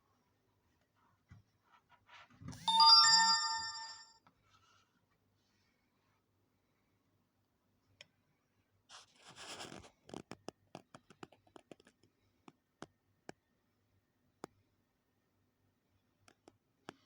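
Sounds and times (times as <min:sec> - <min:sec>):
small sharp clicks and taps: 0:10.0 - 0:13.4.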